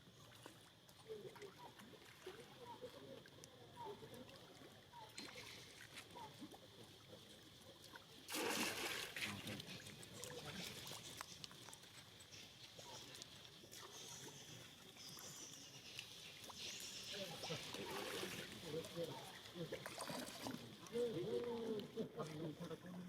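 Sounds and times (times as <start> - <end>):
water sloshing: 7.8 - 16.6, 17.2 - 23.0
loud water splash: 8.3 - 9.3.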